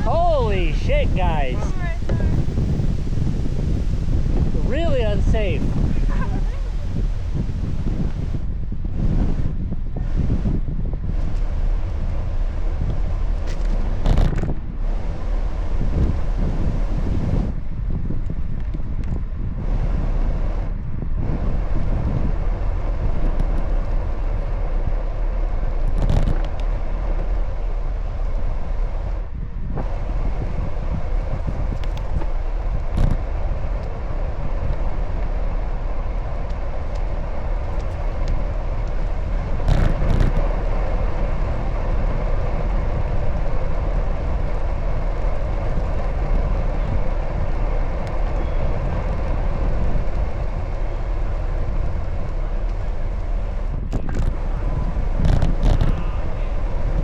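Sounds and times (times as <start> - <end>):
street traffic: 0.0 - 7.5, 31.2 - 57.0
wind rumble on microphone: 0.0 - 57.0.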